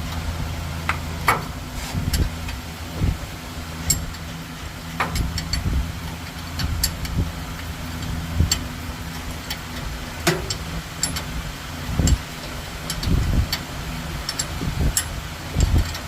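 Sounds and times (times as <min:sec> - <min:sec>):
engine idling: 0:00.0 - 0:16.0
sharp clicks and knocks: 0:04.9 - 0:11.3, 0:12.8 - 0:13.7, 0:14.3 - 0:16.0.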